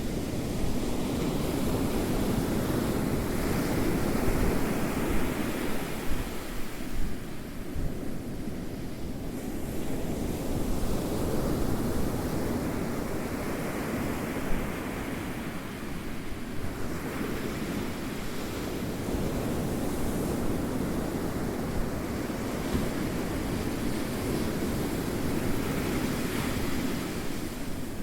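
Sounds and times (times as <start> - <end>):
ocean waves washing on shore: 0.0 - 28.0.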